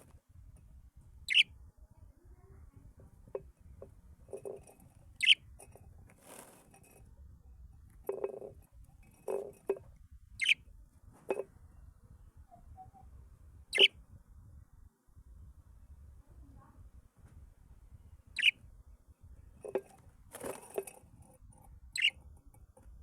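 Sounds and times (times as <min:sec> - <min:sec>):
birds sharp high calls: 0:05.2 - 0:05.4.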